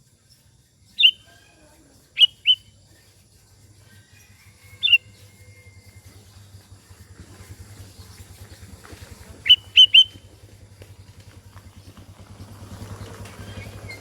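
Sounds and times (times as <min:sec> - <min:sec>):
bird whistling upsweeping notes: 0:00.9 - 0:01.3, 0:02.2 - 0:02.7, 0:09.4 - 0:10.1.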